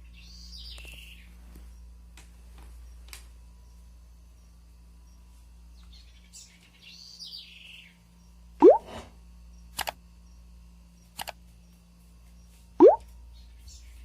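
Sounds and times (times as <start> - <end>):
quick clicks: 9.7 - 10.0, 11.2 - 11.4.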